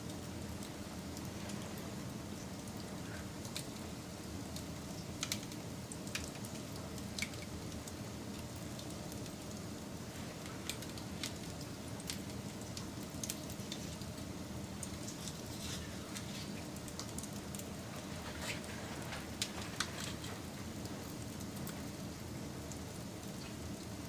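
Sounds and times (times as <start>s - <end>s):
wood fire crackling and popping: 0.0s - 24.0s
fire flames rushing: 13.3s - 22.0s.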